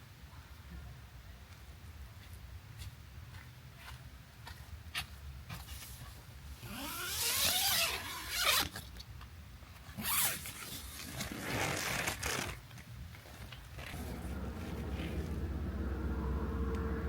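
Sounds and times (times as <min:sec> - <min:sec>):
zipper being pulled: 0:06.6 - 0:08.8, 0:10.0 - 0:12.6.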